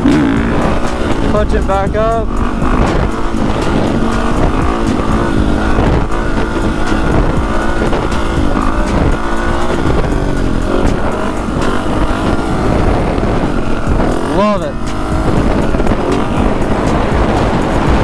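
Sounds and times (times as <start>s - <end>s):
dirt bike engine revving: 0.0s - 18.0s
wind on microphone: 0.0s - 18.0s.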